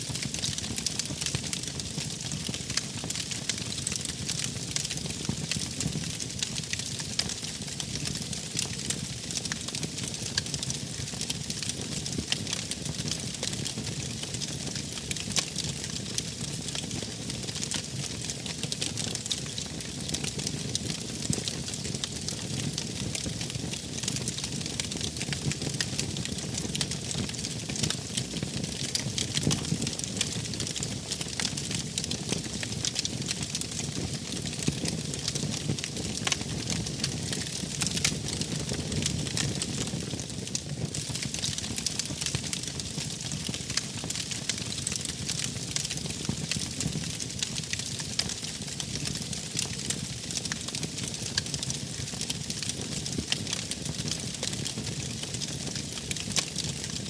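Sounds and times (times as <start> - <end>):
wood fire burning: 0.1 - 57.0.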